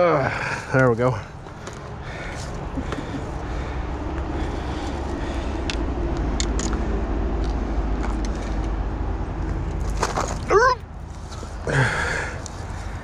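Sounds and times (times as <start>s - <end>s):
low rumble: 2.0s - 11.6s.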